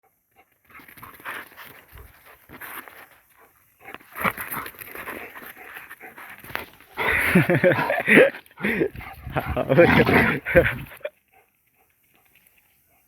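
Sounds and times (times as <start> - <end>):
dog scuffling and snuffling: 0.7 - 8.0, 8.8 - 11.1.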